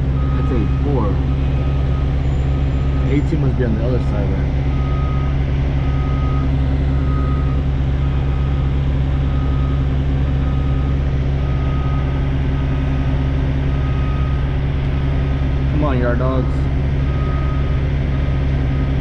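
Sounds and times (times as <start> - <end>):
diesel truck engine running: 0.0 - 19.0
reverse alarm beeping: 0.2 - 12.9, 13.7 - 14.5, 15.8 - 19.0.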